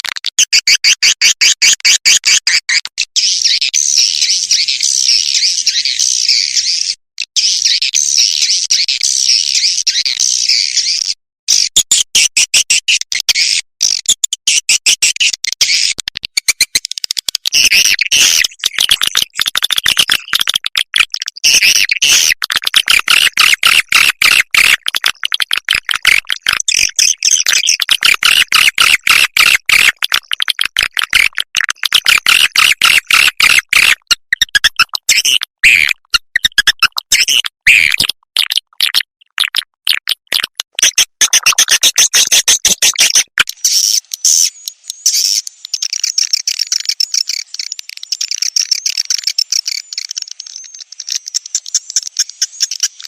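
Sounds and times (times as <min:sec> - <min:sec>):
recorded swiftlet chirps: 0:21.3 - 0:53.0.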